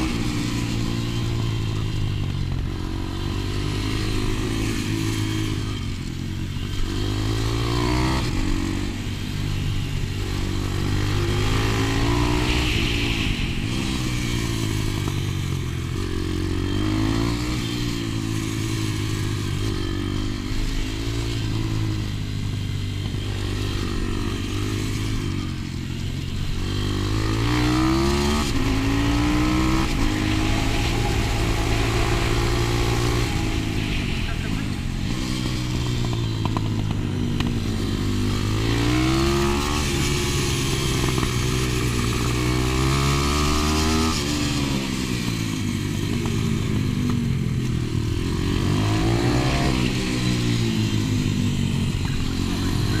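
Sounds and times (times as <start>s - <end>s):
pit bike engine revving: 0.0s - 53.0s.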